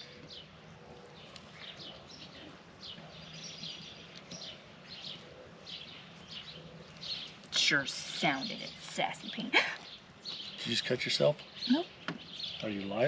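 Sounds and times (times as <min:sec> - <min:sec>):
low outdoor hiss: 0:00.0 - 0:13.0
small birds chirping: 0:00.0 - 0:13.0.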